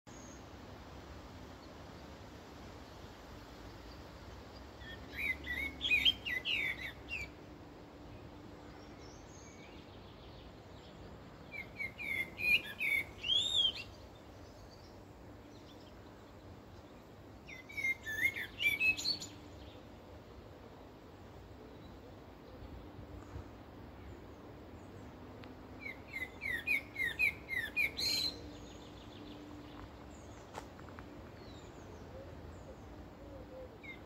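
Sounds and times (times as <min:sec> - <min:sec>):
faint steady hiss: 0:00.1 - 0:34.0
songbird warbling: 0:04.8 - 0:07.3, 0:11.5 - 0:14.0, 0:17.5 - 0:19.5, 0:25.8 - 0:28.6.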